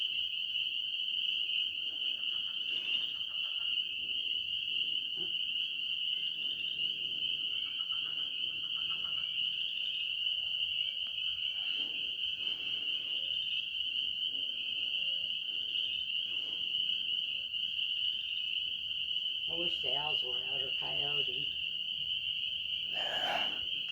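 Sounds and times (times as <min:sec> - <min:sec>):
frogs and insects trilling: 0:00.0 - 0:23.9.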